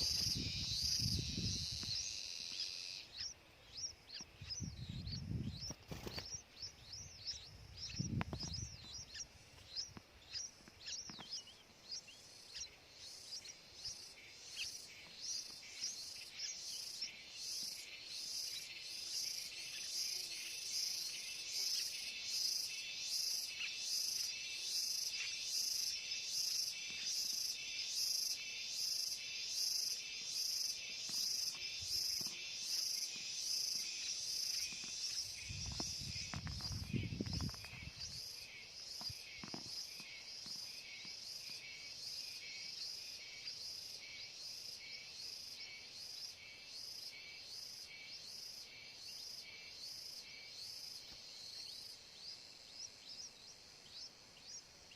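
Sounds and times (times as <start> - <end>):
birds chirping: 0.0 - 43.8
rhythmic insect chirping: 0.0 - 54.9.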